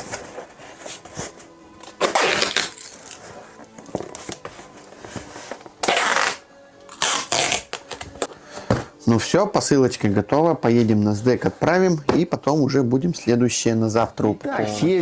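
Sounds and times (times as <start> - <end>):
parcel rustling and scraping: 0.0 - 5.8.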